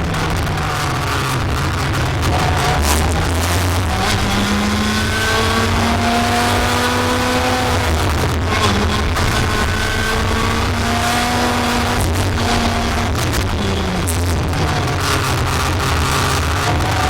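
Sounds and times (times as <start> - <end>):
racing vehicle engine drone: 0.0 - 17.0.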